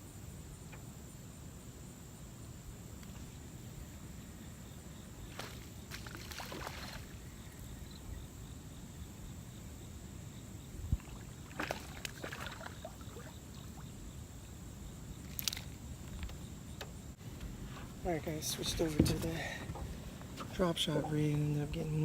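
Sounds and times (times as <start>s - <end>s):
wind and water rumble: 0.0s - 22.0s
dull thump: 18.8s - 20.5s.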